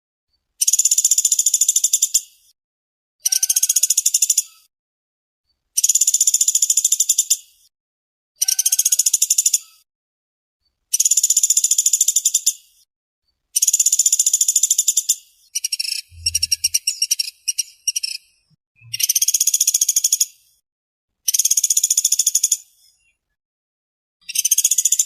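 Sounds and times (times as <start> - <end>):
woodpecker rattling trills: 13.6 - 18.2, 24.3 - 25.0.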